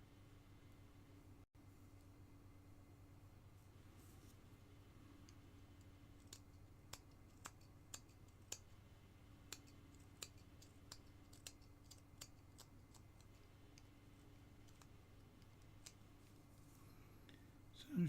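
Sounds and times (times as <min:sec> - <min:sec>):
low steady hum: 0:00.0 - 0:18.0
carving knife clicking in wood: 0:05.2 - 0:08.7, 0:09.4 - 0:13.9, 0:14.6 - 0:16.0.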